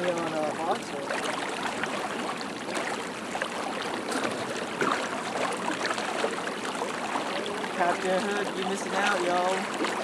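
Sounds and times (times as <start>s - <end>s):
river water rushing: 0.0s - 10.0s
small splashes and ticks: 0.0s - 10.0s.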